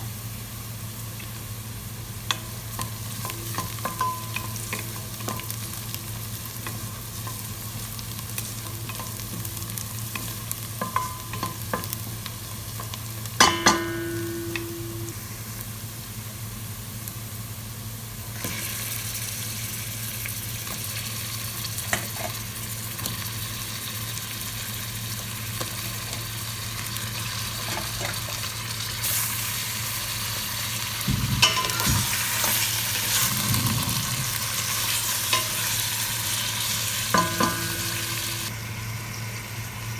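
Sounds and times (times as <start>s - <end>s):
food sizzling in a pan: 0.0s - 39.9s
utensil clinking on a pan: 3.2s - 5.4s, 10.2s - 12.0s, 12.8s - 15.1s, 31.1s - 32.4s, 37.1s - 38.4s.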